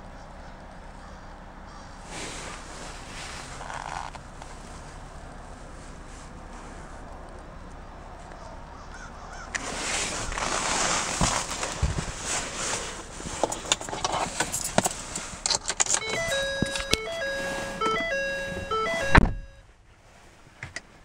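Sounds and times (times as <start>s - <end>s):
fabric rubbing on microphone: 2.0s - 7.0s, 9.6s - 15.4s
car electronic chime beeping: 15.9s - 19.6s.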